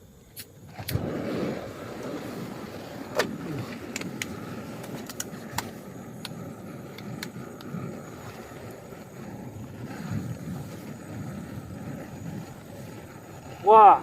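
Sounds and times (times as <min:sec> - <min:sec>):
wind buffeting microphone: 0:00.6 - 0:14.0.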